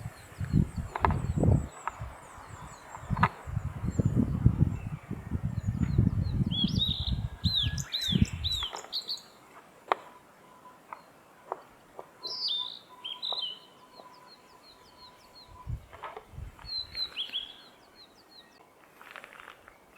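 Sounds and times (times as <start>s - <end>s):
bird singing whistled notes: 0.0s - 9.4s, 10.0s - 18.6s.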